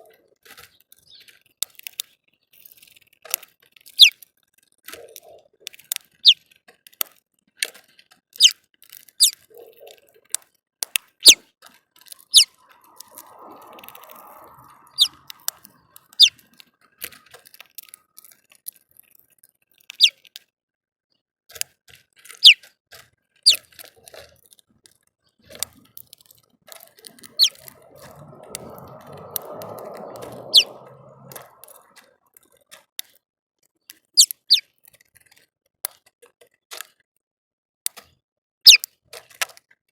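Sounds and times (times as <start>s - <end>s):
small birds chipping: 0.6s - 2.9s, 12.0s - 18.4s, 23.5s - 24.2s, 25.4s - 32.0s, 34.2s - 34.6s.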